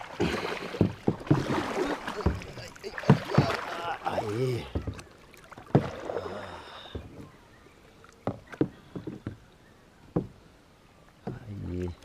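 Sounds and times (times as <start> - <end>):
knocks on a kayak: 0.2 - 3.7.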